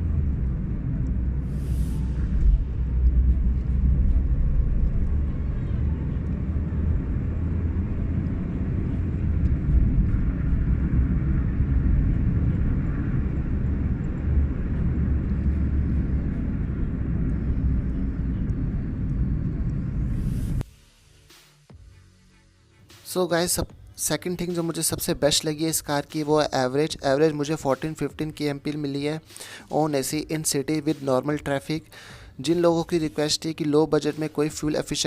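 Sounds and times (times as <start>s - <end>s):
car engine and road noise: 0.0s - 20.7s.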